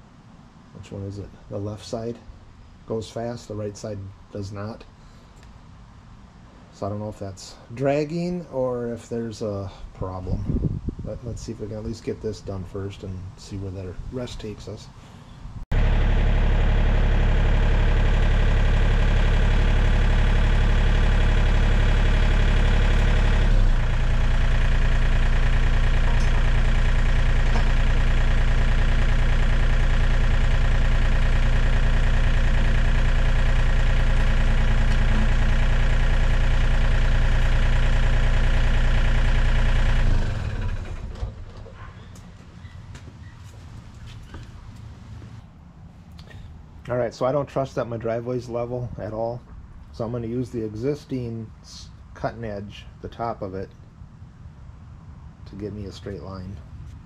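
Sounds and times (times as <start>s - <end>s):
excavator diesel engine running: 15.7s - 42.7s.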